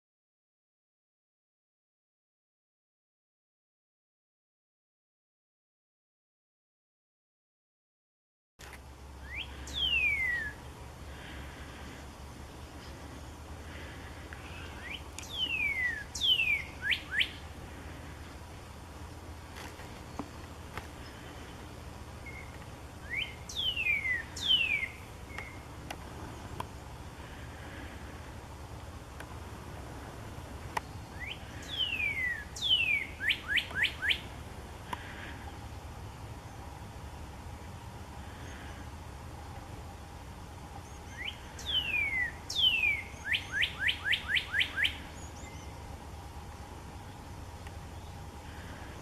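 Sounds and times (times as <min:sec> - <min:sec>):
low background hum: 0:08.6 - 0:49.0
songbird singing: 0:08.6 - 0:49.0
loud descending bird whistles: 0:09.2 - 0:10.6, 0:14.8 - 0:17.4, 0:31.2 - 0:34.2, 0:41.1 - 0:45.0.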